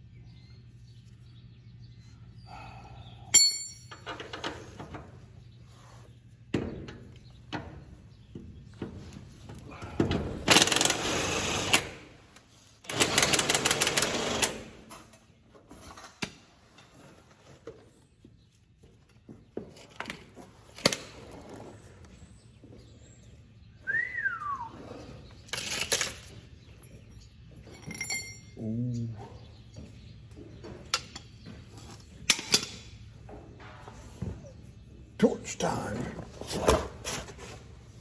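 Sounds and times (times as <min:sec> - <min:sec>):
power wrench rattling on bolts: 0:10.5 - 0:11.9, 0:12.8 - 0:14.6.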